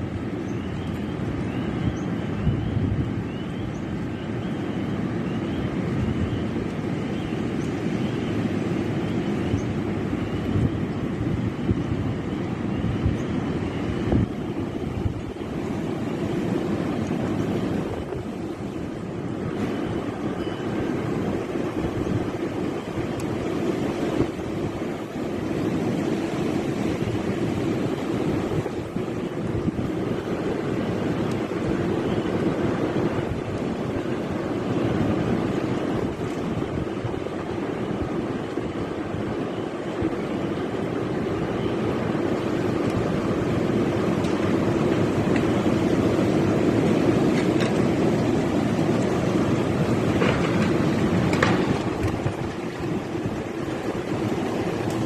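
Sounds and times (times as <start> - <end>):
strong wind buffeting microphone: 0.0 - 55.0.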